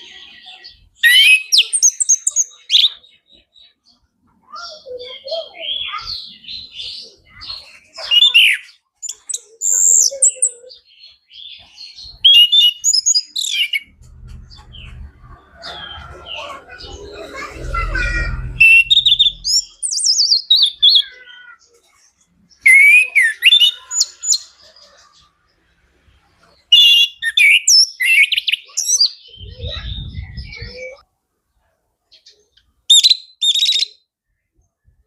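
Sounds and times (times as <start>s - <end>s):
low rumble: 13.8s - 20.0s.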